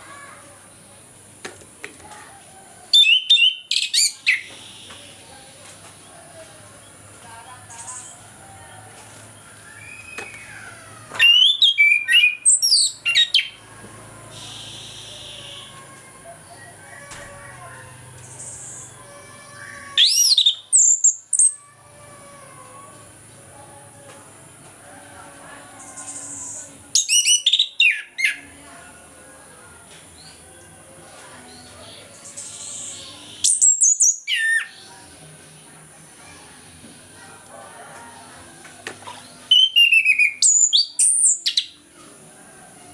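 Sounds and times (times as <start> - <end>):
thrush singing whistled phrases: 2.9 - 5.3, 9.6 - 16.8, 20.0 - 21.6, 25.9 - 28.5, 32.2 - 34.9, 39.3 - 41.8.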